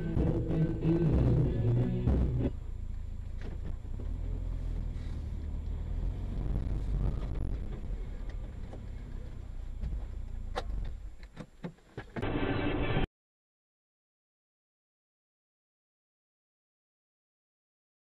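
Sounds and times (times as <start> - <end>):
car driving rumble: 0.0 - 12.5.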